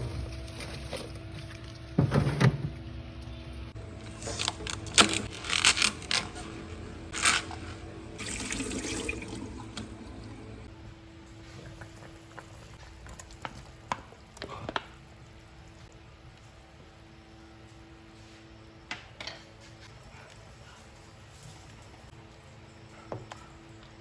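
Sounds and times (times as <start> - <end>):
water running: 6.5 - 10.7.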